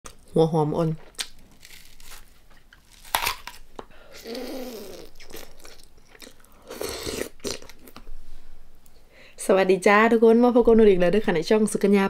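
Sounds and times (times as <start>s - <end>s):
chewing and crunching: 1.0s - 3.6s, 4.9s - 8.0s
crisp crunch of biting onion: 1.1s - 8.0s.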